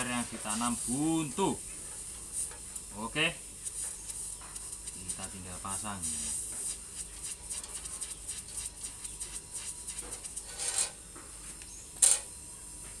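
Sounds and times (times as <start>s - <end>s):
short hissy noise: 0.0s - 12.3s
sharp noise burst: 2.3s - 10.6s
hands rubbing and scratching parts: 3.6s - 12.2s.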